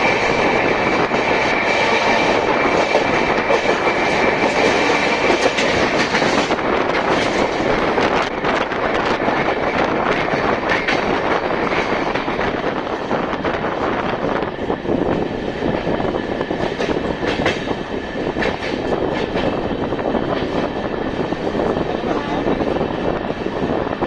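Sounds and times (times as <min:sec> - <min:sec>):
wheels clicking over rail joints: 0:00.0 - 0:08.4
train rolling noise: 0:00.0 - 0:24.0.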